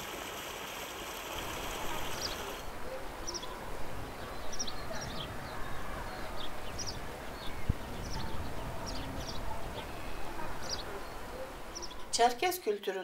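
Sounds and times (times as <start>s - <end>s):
small birds chirping: 1.8s - 2.6s, 4.2s - 12.2s.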